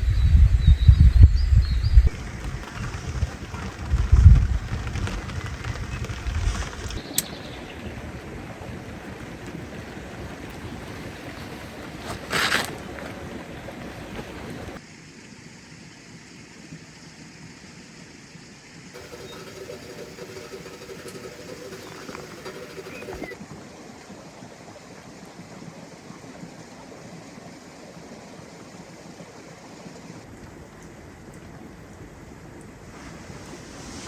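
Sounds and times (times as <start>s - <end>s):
rain falling on forest: 2.1s - 17.8s, 19.0s - 23.8s.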